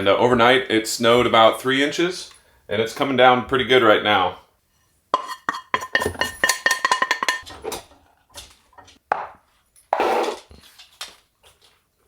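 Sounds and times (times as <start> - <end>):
utensil scraping dish: 4.8 - 7.8
metal utensil clinking on dish: 5.2 - 7.5.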